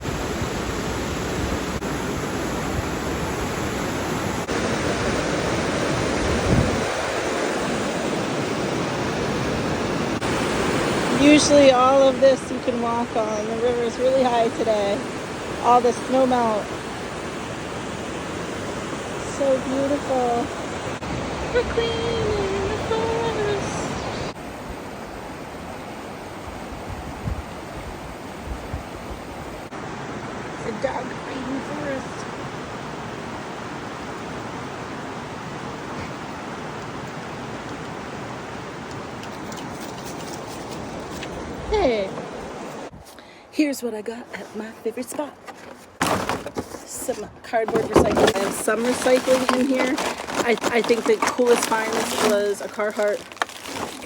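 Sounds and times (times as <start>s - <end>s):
river rushing: 0.0s - 13.2s.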